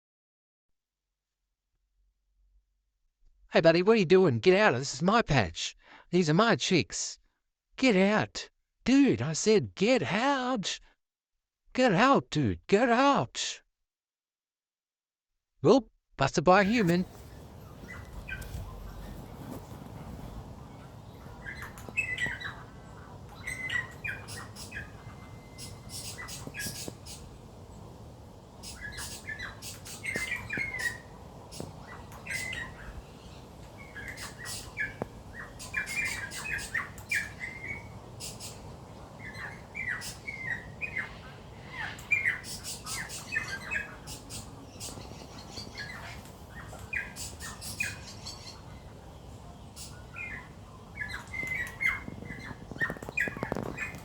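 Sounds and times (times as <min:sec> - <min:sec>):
birds chirping and squawking: 0:16.6 - 0:54.0.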